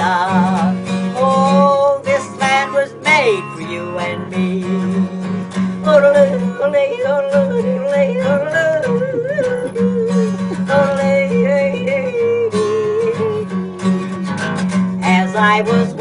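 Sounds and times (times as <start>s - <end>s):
acoustic guitar accompaniment: 0.0s - 16.0s
woman yodeling: 5.8s - 13.7s, 15.0s - 16.0s.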